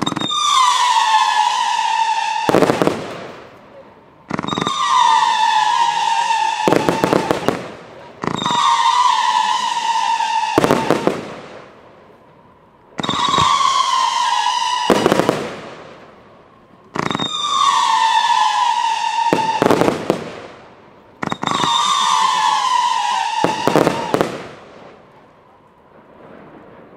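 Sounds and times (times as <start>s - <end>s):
firework whistle: 0.0s - 3.3s, 4.3s - 11.6s, 13.0s - 15.8s, 17.0s - 20.5s, 21.2s - 24.6s
firework shells bursting: 0.0s - 3.6s, 4.2s - 11.8s, 13.0s - 16.2s, 16.9s - 25.1s.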